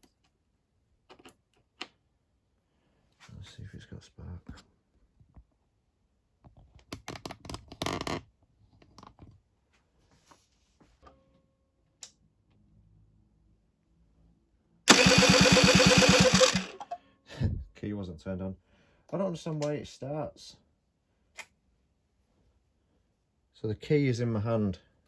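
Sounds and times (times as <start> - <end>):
starter motor cranking: 14.9 - 16.9.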